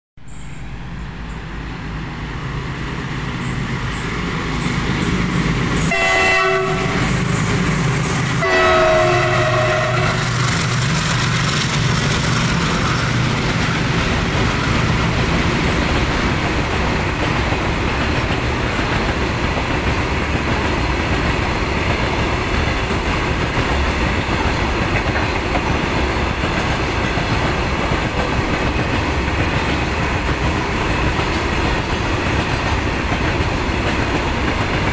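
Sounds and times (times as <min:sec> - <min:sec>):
freight train passing: 0:00.2 - 0:34.9
wheels rumbling and clattering on rail: 0:00.2 - 0:34.9
locomotive horn blasts: 0:05.8 - 0:07.3, 0:08.4 - 0:10.3.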